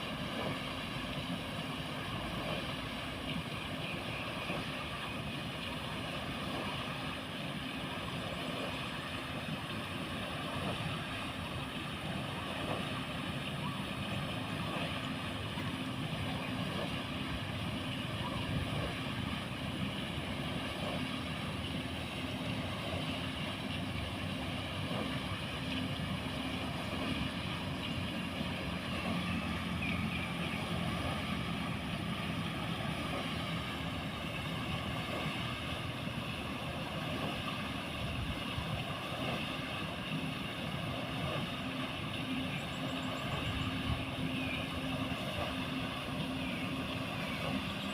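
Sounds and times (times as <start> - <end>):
churning water: 0.0 - 47.9
mechanical hum: 0.0 - 47.9.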